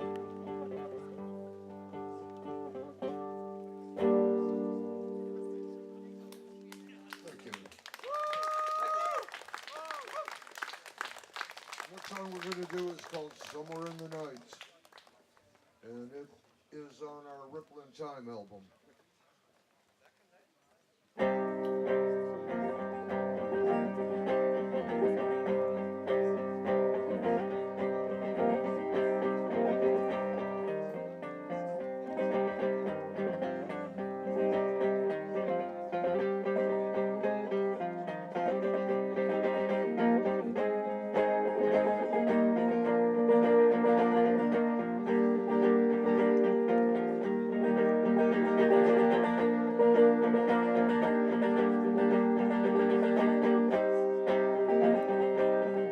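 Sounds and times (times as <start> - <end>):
live band on plucked guitars: 0.0 - 7.6, 21.2 - 55.9.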